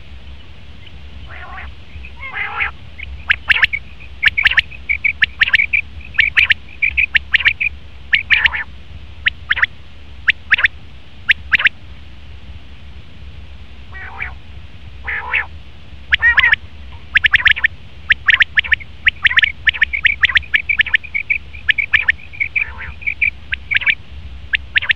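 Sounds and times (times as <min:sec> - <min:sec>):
quail calling: 0:01.2 - 0:09.7, 0:10.3 - 0:10.7, 0:11.3 - 0:11.7, 0:13.9 - 0:14.4, 0:15.0 - 0:15.5, 0:16.1 - 0:24.9.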